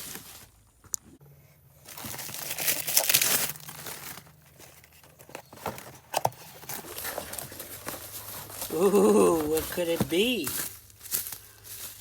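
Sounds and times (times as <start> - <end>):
packaging crinkling and tearing: 1.9 - 11.4.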